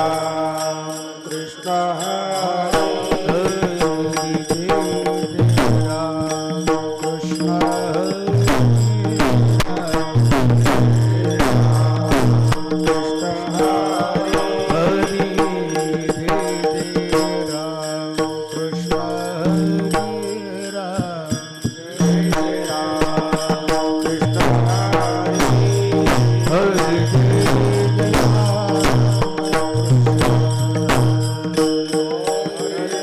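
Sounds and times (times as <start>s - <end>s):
cymbal beats: 0.0s - 33.0s
sung chant: 0.0s - 33.0s
hand drum beats: 2.8s - 33.0s
held drone tones: 22.0s - 33.0s.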